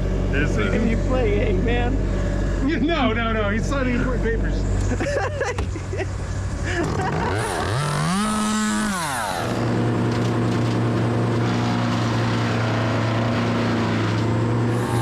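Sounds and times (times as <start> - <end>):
engine drone: 0.0 - 15.0
chainsaw revving: 6.7 - 15.0.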